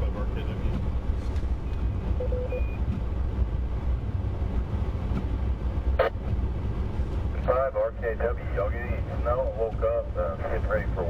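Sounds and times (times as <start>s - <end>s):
vehicle driving rumble: 0.0s - 11.0s
short beep: 2.2s - 2.8s.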